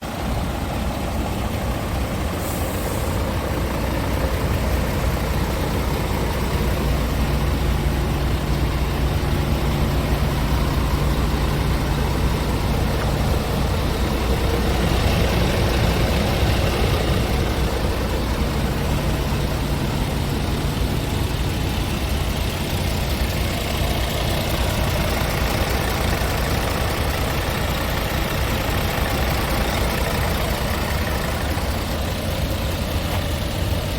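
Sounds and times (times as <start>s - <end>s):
truck diesel engine idling: 0.0s - 33.9s
short hiss: 2.4s - 3.2s.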